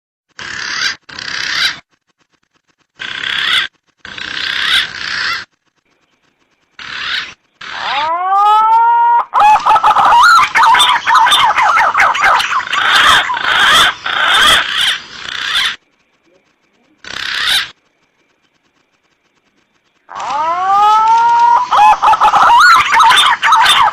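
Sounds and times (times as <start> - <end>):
pigeon calls: 0.3 - 1.8, 3.0 - 5.6, 6.8 - 17.8, 20.1 - 23.9.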